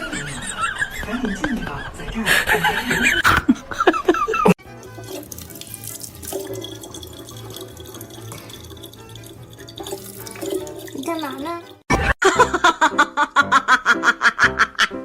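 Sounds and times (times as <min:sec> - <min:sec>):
water running from tap: 0:04.6 - 0:11.9
music: 0:04.6 - 0:15.0.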